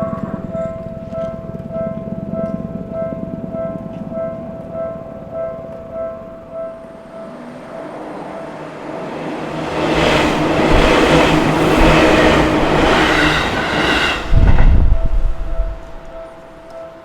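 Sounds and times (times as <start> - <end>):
crossing warning bell ringing: 0.0 - 17.0
train rumble and wheel clatter: 0.0 - 17.0
sudden loud low rumble: 8.3 - 16.6.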